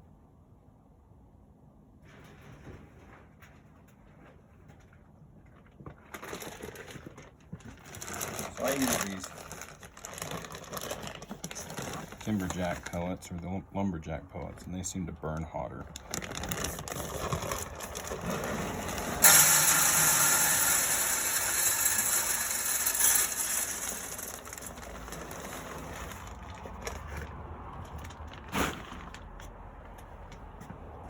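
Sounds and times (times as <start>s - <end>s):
pellets pouring into metal hopper: 7.8s - 12.9s, 16.1s - 27.0s.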